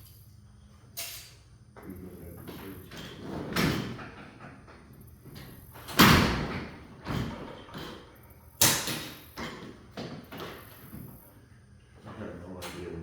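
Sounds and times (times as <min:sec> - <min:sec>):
knocks and bangs on garage door: 0:05.7 - 0:10.7.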